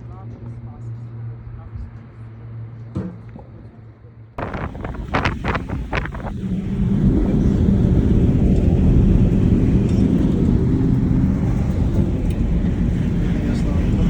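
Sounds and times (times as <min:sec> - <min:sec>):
vehicle engine and tyre rumble: 0:00.0 - 0:14.0.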